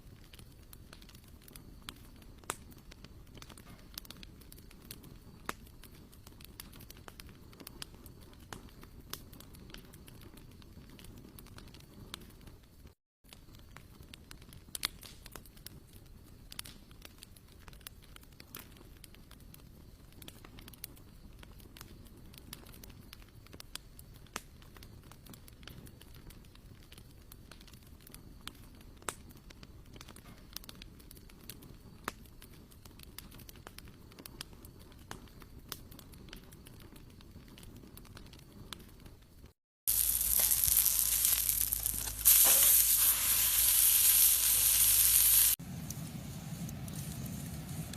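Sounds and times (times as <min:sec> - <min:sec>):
wood fire crackling: 0:00.0 - 0:47.9
food sizzling in a hot pan: 0:39.9 - 0:45.6.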